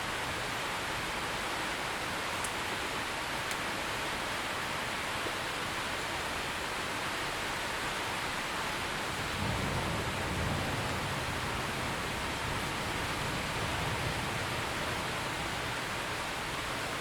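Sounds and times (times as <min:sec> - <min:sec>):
heavy rain falling: 0:00.0 - 0:17.0
distant thunder rumble: 0:09.1 - 0:16.0.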